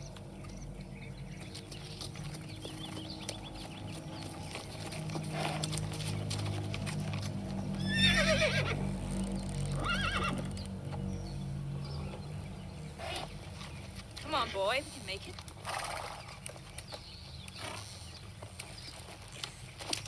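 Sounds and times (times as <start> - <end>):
clip-clop of hooves: 0.0 - 20.0
horse whinnying: 7.8 - 8.8, 9.8 - 10.5.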